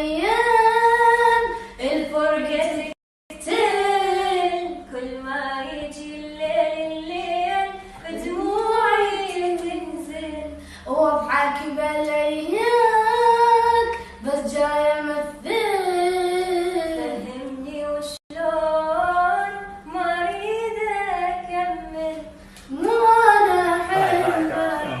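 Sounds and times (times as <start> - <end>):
high solo voice singing: 23.4 - 25.0.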